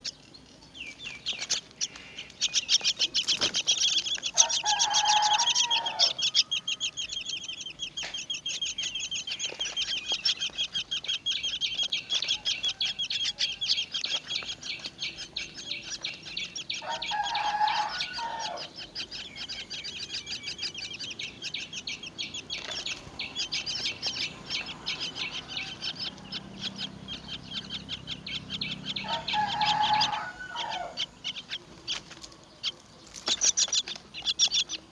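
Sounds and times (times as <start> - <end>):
nestlings begging calls: 0.0 - 34.9
low drawn-out bird call: 23.2 - 31.6.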